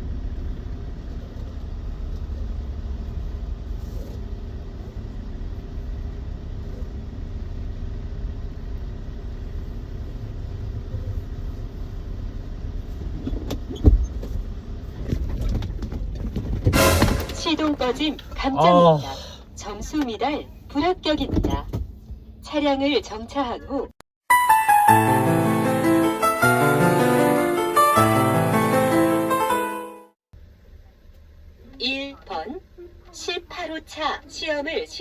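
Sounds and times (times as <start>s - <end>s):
truck engine low rumble: 0.0s - 23.9s
sharp thump: 16.7s - 17.6s.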